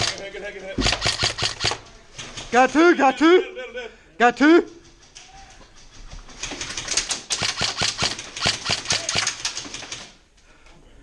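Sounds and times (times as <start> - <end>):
airsoft guns firing: 0.0 - 0.2, 0.8 - 2.6, 4.8 - 10.2.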